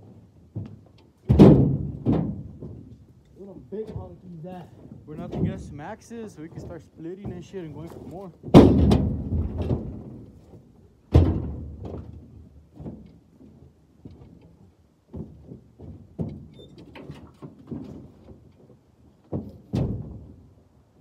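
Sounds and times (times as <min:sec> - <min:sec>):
firewood thudding and knocking: 0:00.5 - 0:03.0, 0:03.8 - 0:05.8, 0:06.6 - 0:13.1, 0:19.2 - 0:20.5.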